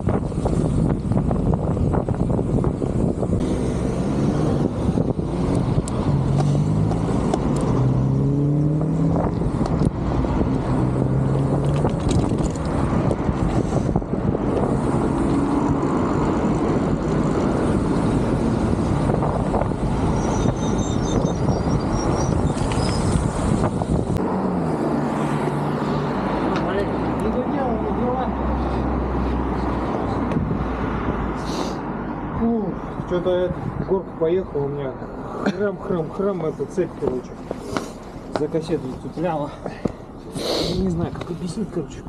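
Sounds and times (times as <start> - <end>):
wind buffeting microphone: 0.0 - 24.2, 28.4 - 31.4.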